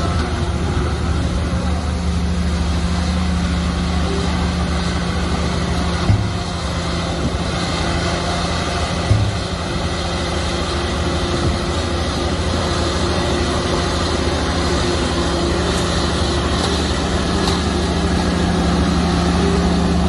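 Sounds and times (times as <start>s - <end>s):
bulldozer diesel engine running: 0.0s - 20.0s
short thump: 6.0s - 6.6s.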